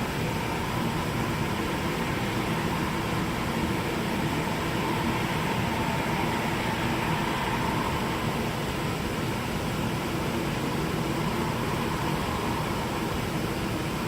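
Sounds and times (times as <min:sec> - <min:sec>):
faint high whine: 0:00.0 - 0:14.0
mechanical drone and hiss: 0:00.0 - 0:14.0.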